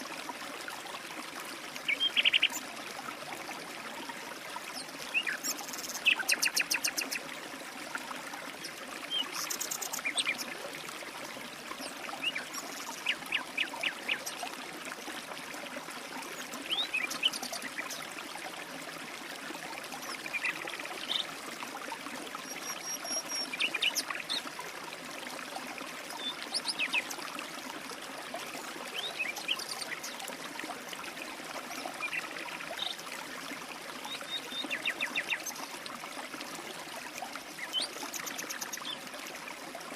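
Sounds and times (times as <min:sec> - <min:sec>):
stream trickling: 0:00.0 - 0:39.9
birds chirping and trilling: 0:01.9 - 0:02.6.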